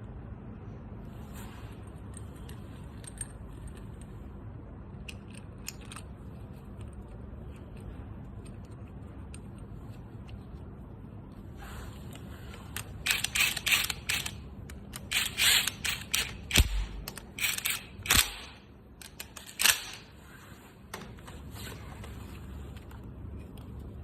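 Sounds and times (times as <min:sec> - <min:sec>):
tools and small parts clattering: 0:05.0 - 0:09.6, 0:12.5 - 0:20.2.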